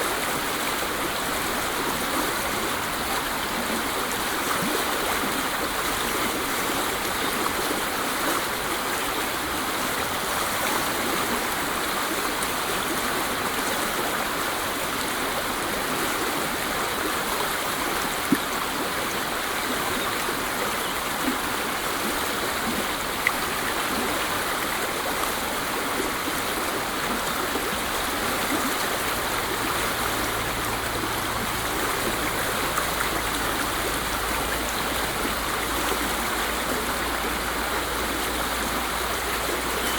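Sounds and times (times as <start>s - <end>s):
water splashes: 0.0s - 39.9s
waterfall rushing: 0.0s - 39.9s.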